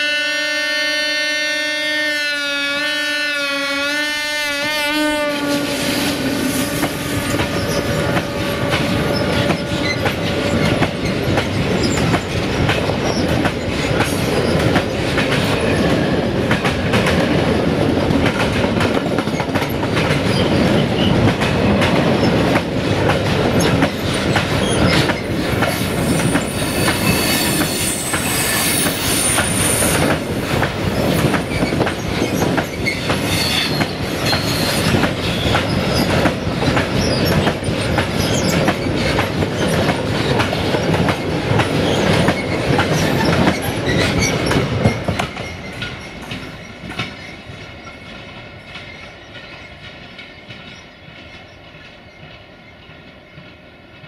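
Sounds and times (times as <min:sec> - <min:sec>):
diesel locomotive: 0:00.0 - 0:54.0
high wheel squeal: 0:05.6 - 0:08.2, 0:24.6 - 0:39.7
clacking over rail joints: 0:06.8 - 0:27.1, 0:28.1 - 0:53.6.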